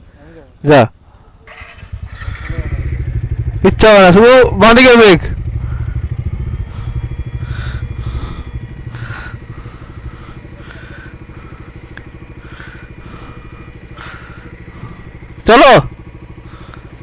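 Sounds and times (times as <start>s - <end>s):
single-cylinder engine running: 0.4s - 17.0s.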